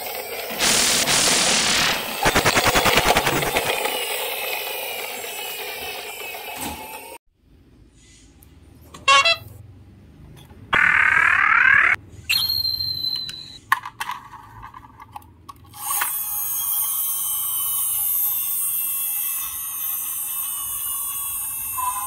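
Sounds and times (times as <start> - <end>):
continuous electronic toy sound: 0.0 - 7.2, 15.7 - 22.0
toy rising tone: 2.0 - 7.2, 15.8 - 22.0
toy high beep: 12.3 - 13.6.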